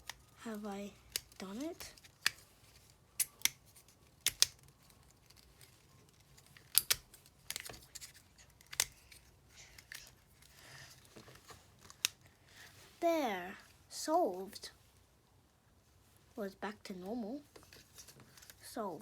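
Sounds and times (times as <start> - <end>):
plastic puzzle clicking: 0.0 - 12.2.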